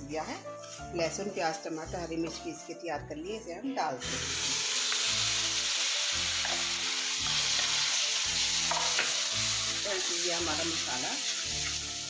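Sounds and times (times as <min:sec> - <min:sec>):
paste sizzling in hot oil: 0:00.0 - 0:02.7, 0:04.0 - 0:12.0
spatula stirring in a pan: 0:00.2 - 0:02.5, 0:04.4 - 0:09.9.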